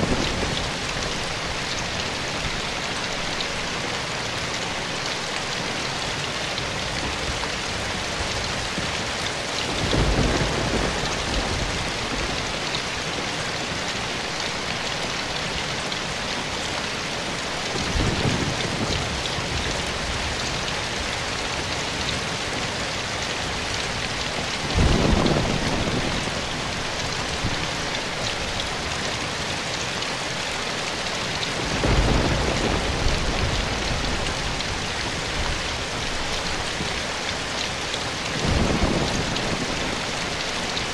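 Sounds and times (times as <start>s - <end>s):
rain on foliage: 0.0s - 40.9s
distant thunder rumbles: 9.6s - 12.6s, 24.6s - 26.6s, 31.6s - 35.6s.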